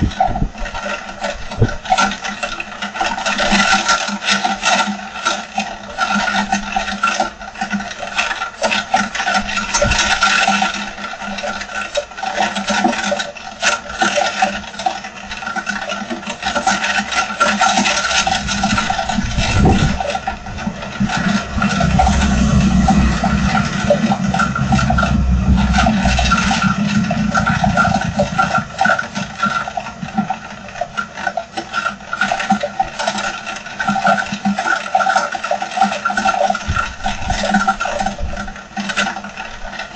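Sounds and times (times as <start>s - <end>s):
steady hum: 17.2s - 33.8s
wind gust rumble: 17.8s - 31.4s
heavy rain: 17.9s - 31.3s.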